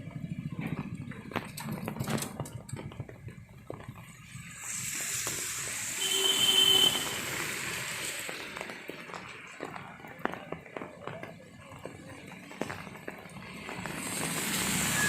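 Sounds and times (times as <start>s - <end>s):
tyres hissing on wet road: 3.2s - 15.0s.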